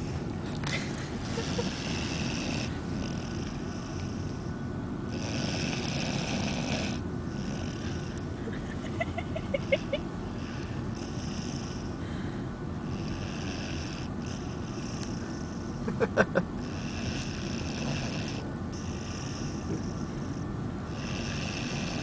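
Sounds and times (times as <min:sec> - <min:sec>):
dog snoring: 0:01.3 - 0:04.5, 0:05.1 - 0:08.2, 0:09.6 - 0:12.0, 0:12.8 - 0:15.9, 0:16.6 - 0:22.0
car rumble: 0:07.0 - 0:13.0.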